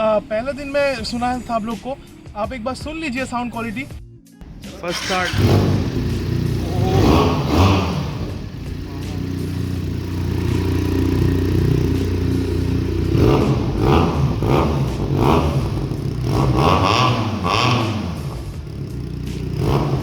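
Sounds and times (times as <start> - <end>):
motorcycle engine idling and revving: 4.4 - 20.0.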